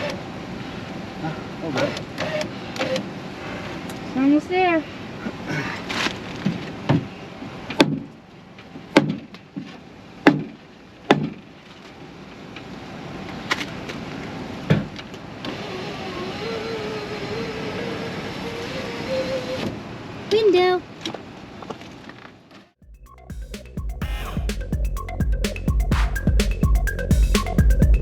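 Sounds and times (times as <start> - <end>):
power window motor whine: 15.4 - 19.5.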